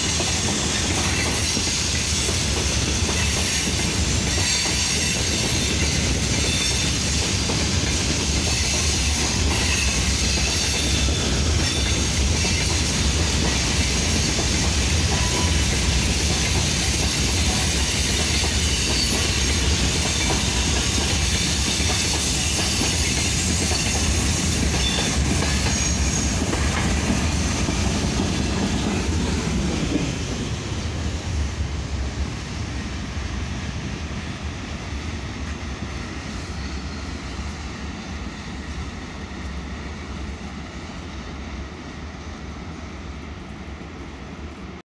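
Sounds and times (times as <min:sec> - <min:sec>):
train wheels clattering on rails: 0:00.0 - 0:39.6.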